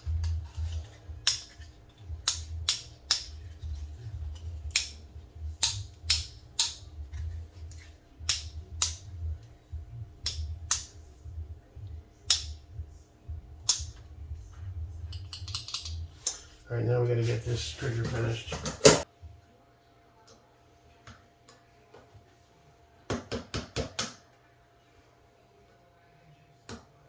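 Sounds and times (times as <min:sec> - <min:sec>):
low steady hum: 0:00.0 - 0:21.0
sharp metal clicks: 0:01.2 - 0:01.6, 0:02.2 - 0:03.5, 0:05.6 - 0:06.9, 0:08.2 - 0:09.1, 0:10.2 - 0:10.9, 0:12.3 - 0:12.6, 0:13.6 - 0:14.0, 0:15.1 - 0:16.4.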